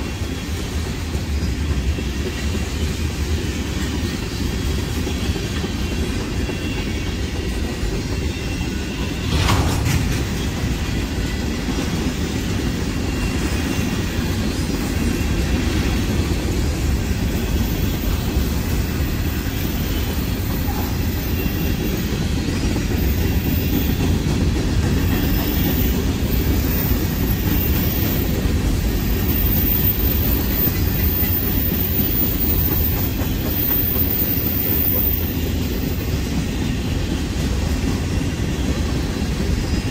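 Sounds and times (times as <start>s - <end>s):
freight train rolling past: 0.0s - 39.9s
sharp metal clank: 9.2s - 11.0s.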